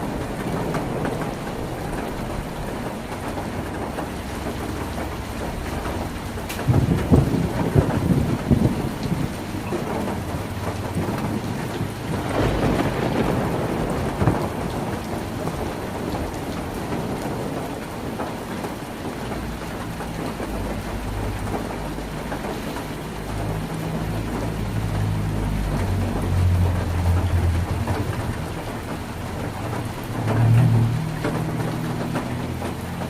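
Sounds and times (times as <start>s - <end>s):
heavy rain on a tin roof: 0.0s - 33.0s
low rumble: 23.7s - 32.8s.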